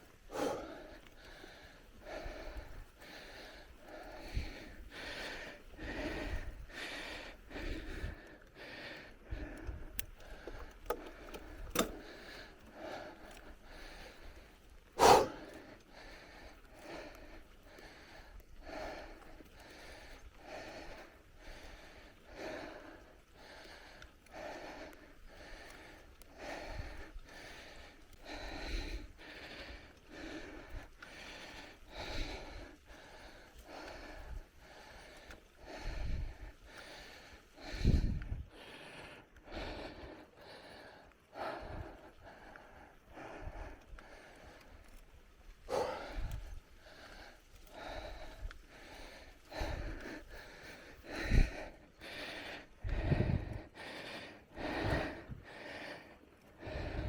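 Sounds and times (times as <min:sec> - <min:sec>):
heavy rhythmic breathing: 0:00.0 - 0:57.0
wind rumble on microphone: 0:04.1 - 0:06.8, 0:35.7 - 0:36.6, 0:37.6 - 0:38.5, 0:51.0 - 0:51.8, 0:52.8 - 0:53.7, 0:56.6 - 0:57.0.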